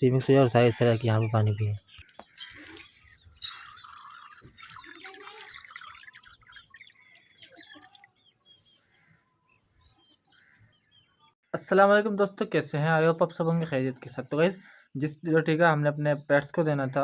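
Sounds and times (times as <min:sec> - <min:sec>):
liquid trickling and dripping: 0:02.0 - 0:08.3.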